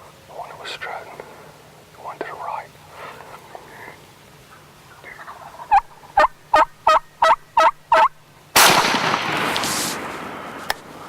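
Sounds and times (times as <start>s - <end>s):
turkey yelps: 4.5s - 8.2s
shotgun blast echoing: 8.6s - 10.9s.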